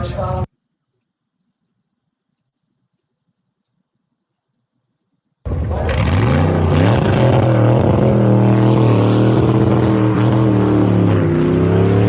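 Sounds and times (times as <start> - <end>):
car engine revving high: 5.5 - 12.0.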